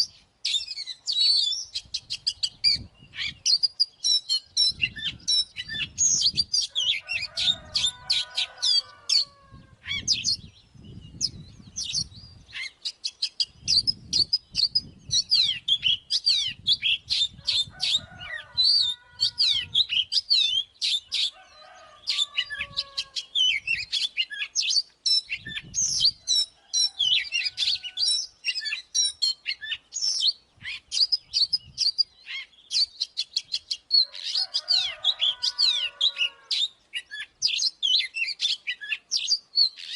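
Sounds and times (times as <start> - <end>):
bird singing whistles and trills: 0.0 - 8.1, 8.7 - 39.9.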